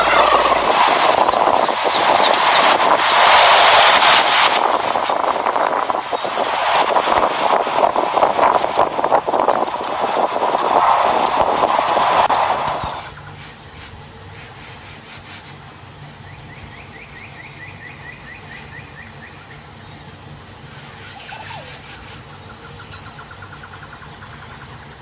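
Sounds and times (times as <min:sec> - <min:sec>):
bird trilling: 0:00.0 - 0:02.7, 0:20.8 - 0:23.6
steady low hum: 0:00.0 - 0:25.0.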